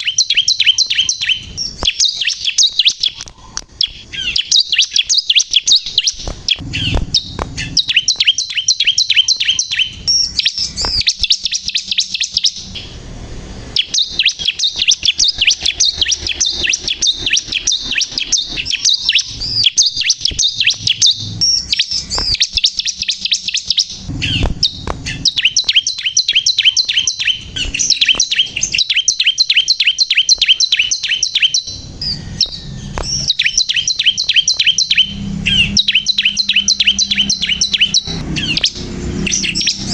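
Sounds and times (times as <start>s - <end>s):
bird singing rapid high chirps: 0.0s - 39.9s.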